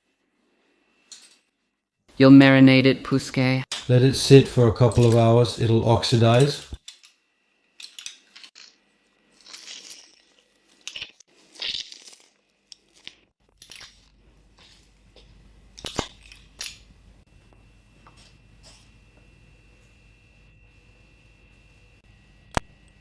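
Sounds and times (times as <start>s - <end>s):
kitchen rustling and scraping: 3.7s - 17.1s.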